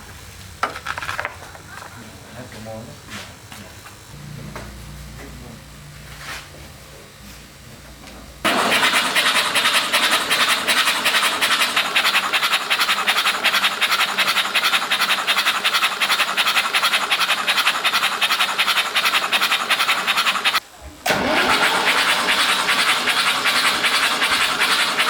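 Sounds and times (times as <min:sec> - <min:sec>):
rapid scratching: 0:08.5 - 0:20.6.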